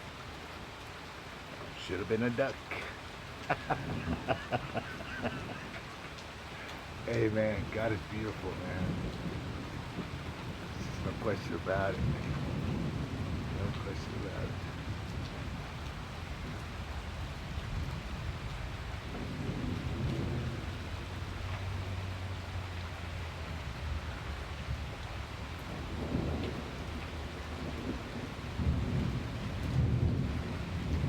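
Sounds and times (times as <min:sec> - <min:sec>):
heavy rain pouring: 0:00.0 - 0:31.0
low thunder rumbling: 0:03.4 - 0:22.7, 0:23.5 - 0:31.0.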